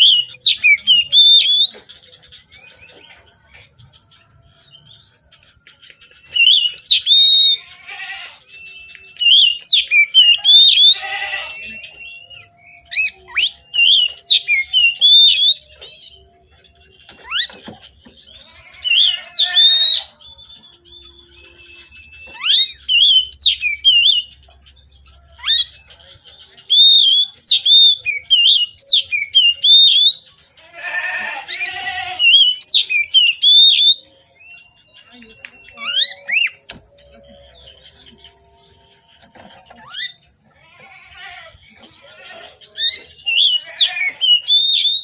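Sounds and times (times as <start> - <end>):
bird singing whistled phrases: 0.0 - 1.7, 5.9 - 7.7, 8.4 - 16.2, 18.8 - 24.4, 26.7 - 30.2, 31.6 - 38.4, 42.8 - 45.0.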